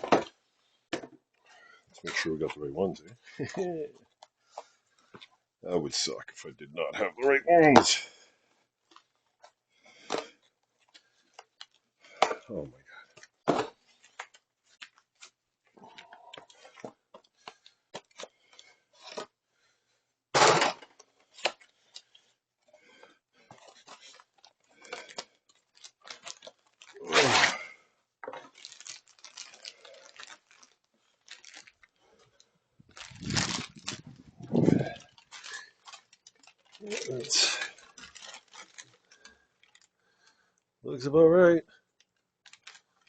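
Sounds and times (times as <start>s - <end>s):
packaging tearing and rustling: 23.6s - 32.0s, 32.9s - 39.9s, 42.4s - 43.0s.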